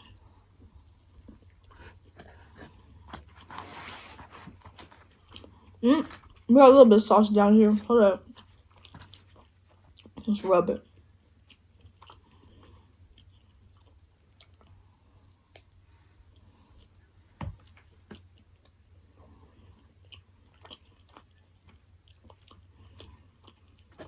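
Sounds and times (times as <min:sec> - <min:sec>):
chewing and mouth clicks: 0:08.2 - 0:24.0.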